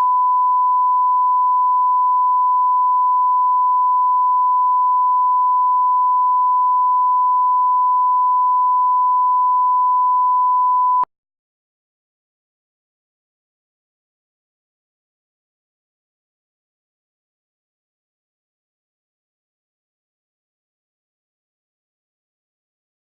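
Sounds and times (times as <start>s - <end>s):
steady test tone beep: 0.0s - 11.1s.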